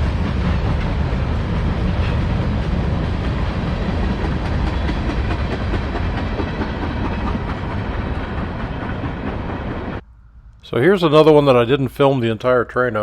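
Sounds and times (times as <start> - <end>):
wheels clacking over rail joints: 0.0 - 10.0
train wheels rumbling on rail: 0.0 - 11.6.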